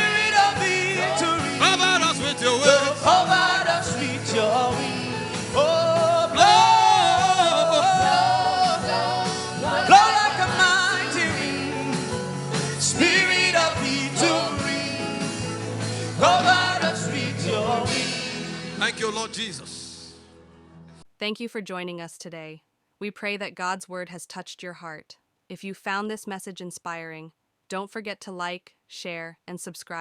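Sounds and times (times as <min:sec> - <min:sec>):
instrumental backing with bass: 0:00.0 - 0:21.0.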